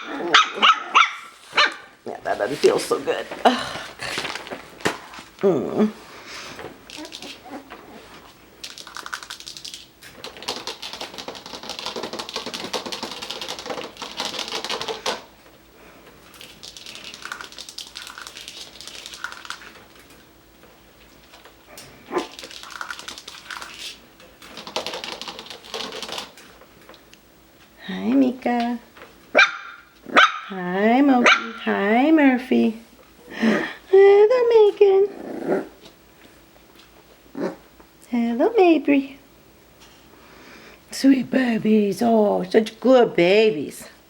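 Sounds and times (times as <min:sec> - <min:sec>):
puppies' claws clicking and scratching: 0:03.9 - 0:05.4, 0:06.6 - 0:27.2.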